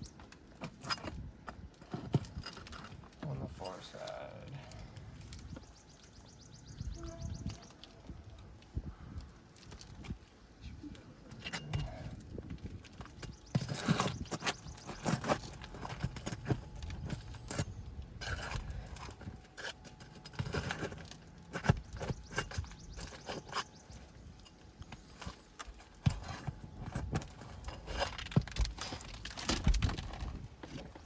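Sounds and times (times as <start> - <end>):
pry tool scraping shingles: 11.3 - 31.0.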